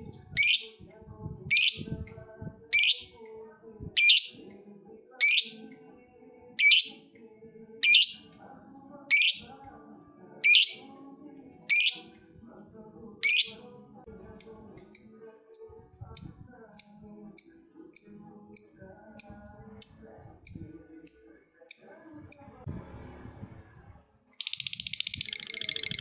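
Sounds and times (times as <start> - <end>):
bird chirping: 0.4 - 0.8, 1.5 - 1.9, 2.8 - 3.1, 4.0 - 4.4, 5.2 - 5.6, 6.6 - 7.0, 7.8 - 8.2, 9.1 - 9.5, 10.4 - 10.9, 11.7 - 12.0, 13.2 - 13.6, 24.3 - 26.0
bird shrieking: 2.8 - 3.1, 4.0 - 4.4, 6.6 - 7.0, 7.8 - 8.2, 9.1 - 9.4, 10.4 - 10.8.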